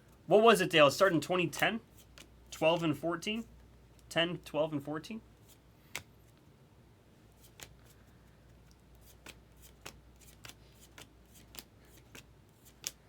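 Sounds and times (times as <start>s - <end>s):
trading cards flicking: 7.4s - 7.9s, 8.6s - 13.0s.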